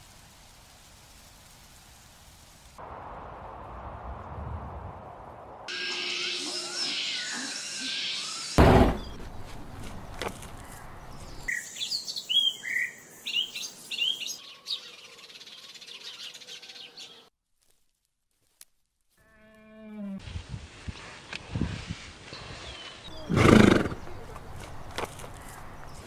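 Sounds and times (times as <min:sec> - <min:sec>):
small birds chirping: 0:05.7 - 0:17.3, 0:22.3 - 0:26.0
loud low thump: 0:08.6 - 0:09.4.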